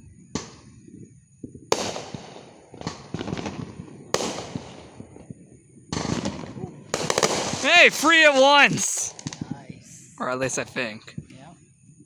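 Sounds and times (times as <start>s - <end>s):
fireworks crackling pops: 1.4s - 5.1s, 5.9s - 9.6s
fireworks bangs: 7.0s - 9.4s.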